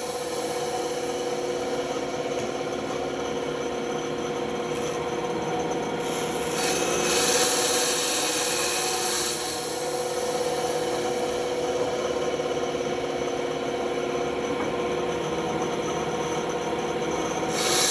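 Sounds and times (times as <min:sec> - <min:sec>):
band saw motor hum: 0:00.0 - 0:17.9
saw blade cutting wood: 0:06.0 - 0:10.4, 0:17.5 - 0:17.9.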